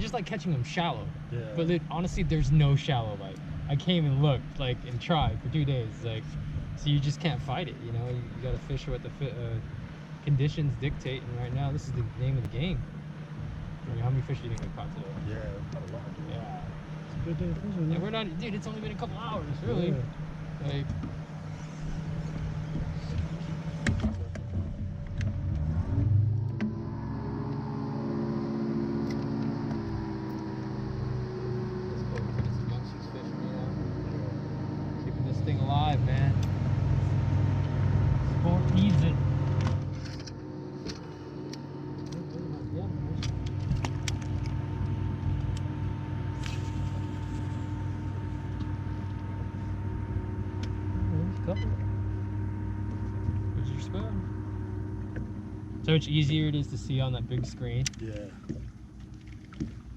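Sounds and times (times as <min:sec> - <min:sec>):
boat motor running: 0:00.0 - 0:59.9
sharp clicks and knocks: 0:57.3 - 0:59.8.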